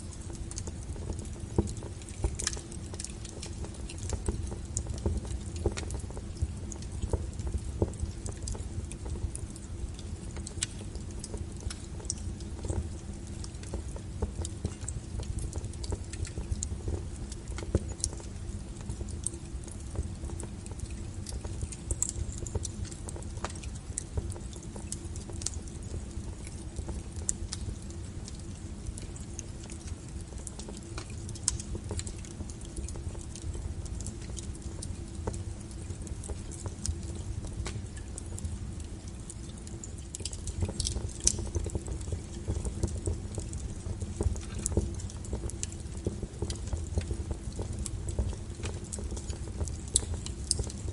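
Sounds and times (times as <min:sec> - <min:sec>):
firewood crackling and popping: 0:00.0 - 0:50.9
low rumble of flames: 0:00.0 - 0:50.9.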